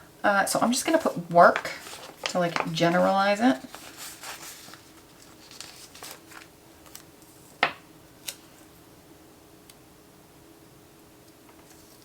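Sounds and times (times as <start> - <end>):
paper rustling: 0.9 - 7.6, 11.6 - 12.0.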